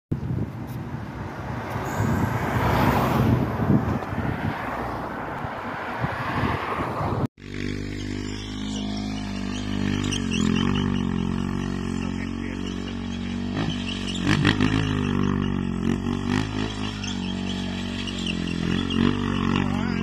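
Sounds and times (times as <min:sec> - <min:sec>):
steady engine note: 0:01.8 - 0:02.7
rough motorcycle engine: 0:07.4 - 0:20.0.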